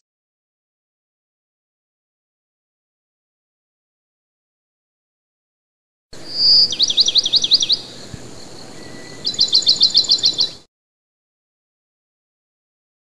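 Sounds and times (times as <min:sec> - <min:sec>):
songbird singing: 0:06.2 - 0:10.7.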